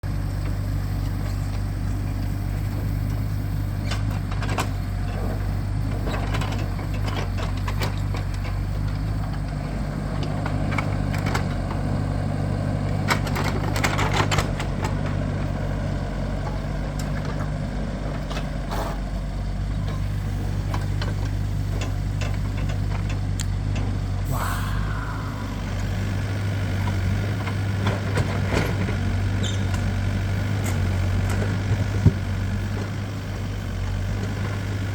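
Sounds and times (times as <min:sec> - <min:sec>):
heavy engine running: 0:00.0 - 0:34.9
short rising whine: 0:24.3 - 0:26.4.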